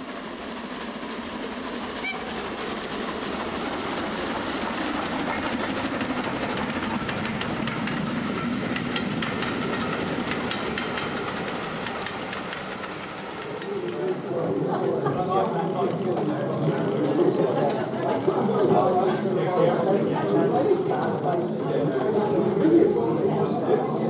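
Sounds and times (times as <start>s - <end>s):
model train wheels clicking: 0.4s - 24.0s.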